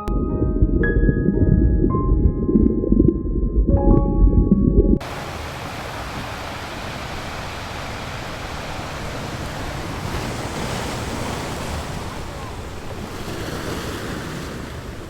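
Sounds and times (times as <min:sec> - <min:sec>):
music: 0:00.0 - 0:05.0
rushing water: 0:05.0 - 0:15.0.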